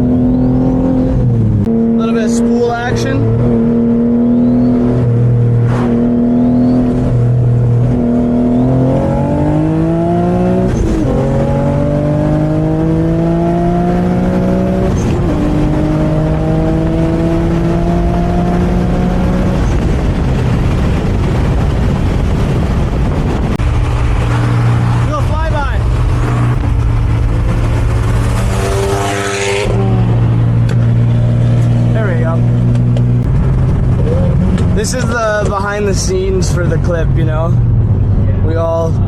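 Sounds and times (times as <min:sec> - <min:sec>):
car engine accelerating: 0:00.0 - 0:39.0
road and wind noise: 0:00.0 - 0:39.0.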